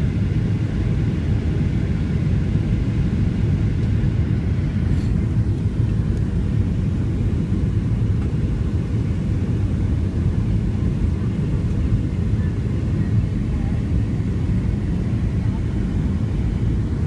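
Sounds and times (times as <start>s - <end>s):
airplane engines rumbling: 0.0s - 17.0s
rushing air: 4.1s - 7.0s.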